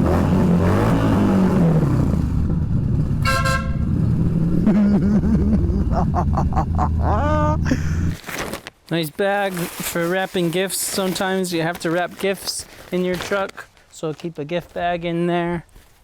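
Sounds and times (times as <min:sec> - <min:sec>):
short high horn beep: 0:03.2 - 0:03.8
low motorcycle horn blast: 0:03.2 - 0:04.0.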